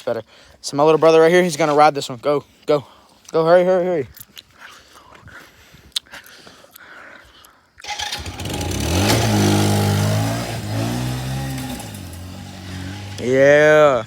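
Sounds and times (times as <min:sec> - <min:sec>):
atv engine revving: 0:07.8 - 0:14.0.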